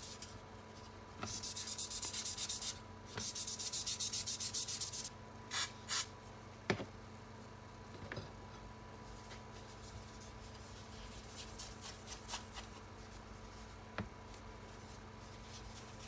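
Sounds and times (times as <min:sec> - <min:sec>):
steady low hum: 0:00.0 - 0:16.0
faint scratching strokes: 0:09.0 - 0:16.0.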